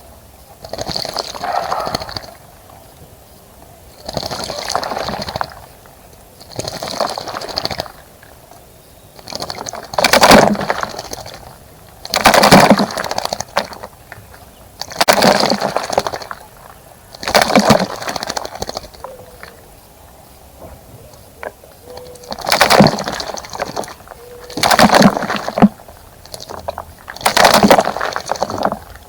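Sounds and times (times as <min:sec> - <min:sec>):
bird splashing in bird bath: 0:00.6 - 0:02.7, 0:04.0 - 0:08.4, 0:09.1 - 0:19.7, 0:21.2 - 0:29.0.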